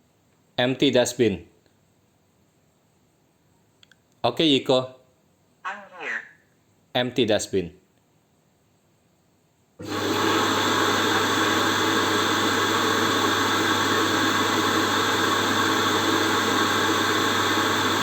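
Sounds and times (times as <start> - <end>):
suction motor humming: 9.8 - 18.0.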